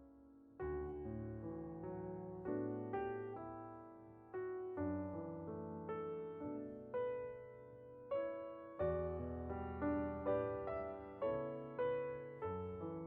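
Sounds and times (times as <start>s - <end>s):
slow gentle piano music: 0.0s - 13.0s.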